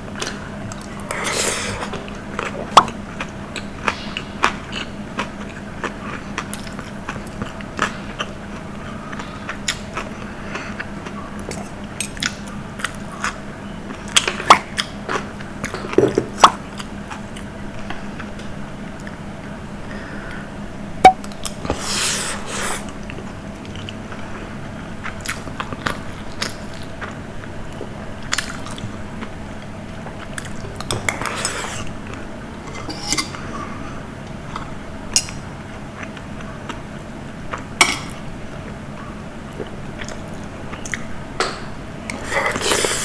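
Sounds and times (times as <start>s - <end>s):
cutlery scraping a food tray: 30.9s - 31.9s, 32.7s - 33.4s.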